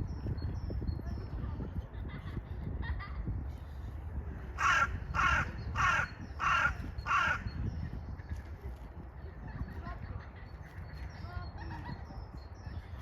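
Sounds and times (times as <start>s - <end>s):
bird harsh calls: 4.6s - 7.9s.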